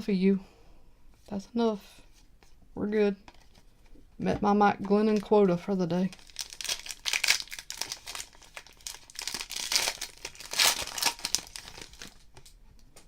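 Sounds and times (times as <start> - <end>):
plastic wrapper crinkling and tearing: 6.0 - 12.6.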